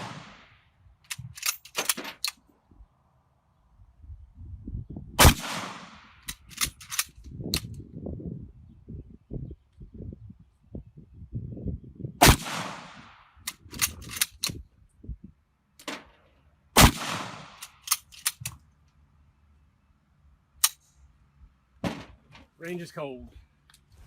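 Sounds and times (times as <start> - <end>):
rifle shots: 0.0 - 0.5, 5.2 - 6.7, 12.2 - 13.2, 16.8 - 17.9
rifle bolt metallic clicks: 1.0 - 2.4, 6.2 - 7.8, 13.4 - 14.6, 17.5 - 19.0, 20.6 - 21.0.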